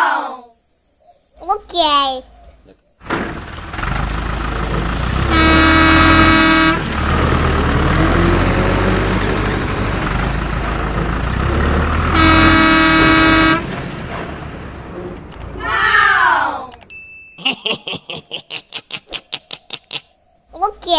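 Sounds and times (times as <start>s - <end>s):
low engine rumble: 2.6s - 16.9s
vehicle horn honking: 5.2s - 6.9s, 12.0s - 13.7s.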